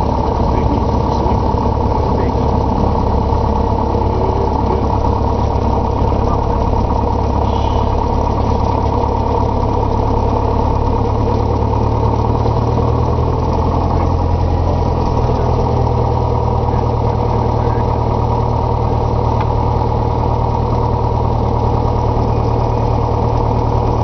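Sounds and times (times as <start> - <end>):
light aircraft piston engine: 0.0 - 24.0.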